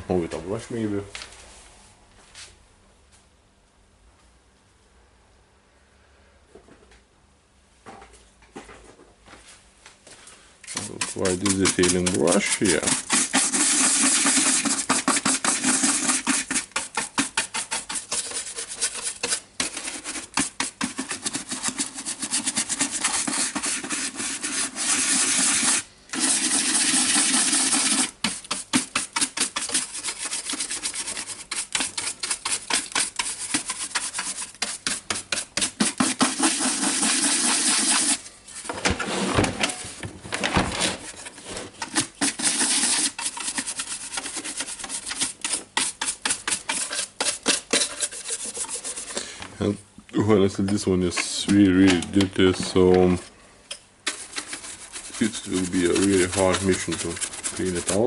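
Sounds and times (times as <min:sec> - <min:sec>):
brush scrubbing plastic: 0:10.6 - 0:38.7, 0:41.0 - 0:49.2, 0:54.0 - 0:58.0.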